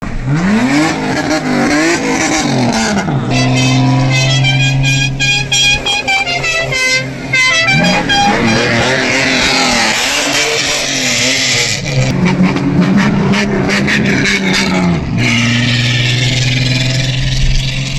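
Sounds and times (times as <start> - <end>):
car engines revving: 0.0 - 17.9
pulsing horn-like sound: 3.0 - 16.9.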